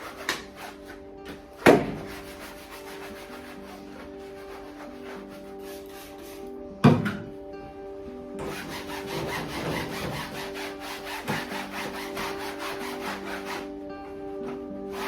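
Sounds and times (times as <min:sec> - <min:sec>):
scrubbing by hand: 0:00.0 - 0:01.0, 0:01.8 - 0:06.5, 0:08.4 - 0:13.7.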